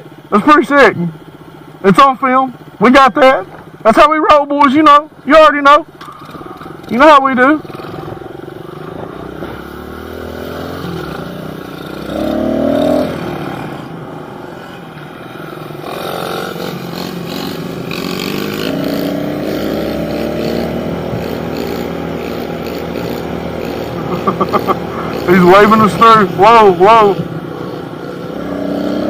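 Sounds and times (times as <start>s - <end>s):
pit bike engine revving: 4.7s - 29.0s.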